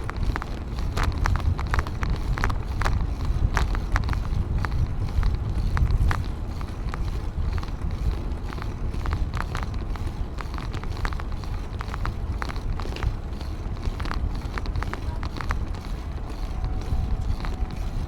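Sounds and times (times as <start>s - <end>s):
light clicks and rattles: 0.0s - 18.0s
wind buffeting microphone: 0.0s - 18.0s.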